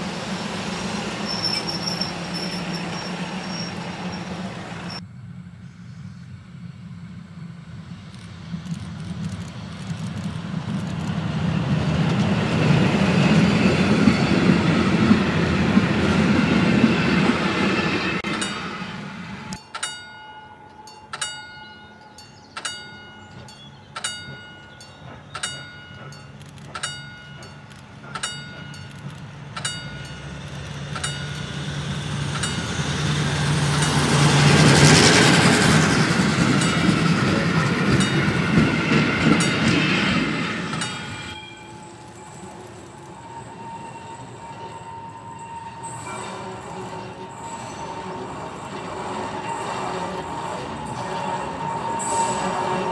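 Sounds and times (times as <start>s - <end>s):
train rumbling past: 0.0s - 52.9s.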